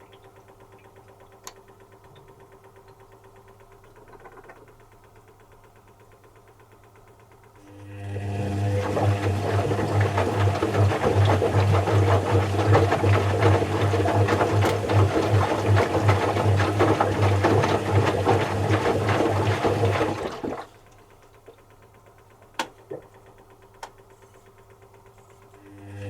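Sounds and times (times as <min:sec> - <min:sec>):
washing machine drain pump humming: 0:00.0 - 0:26.0.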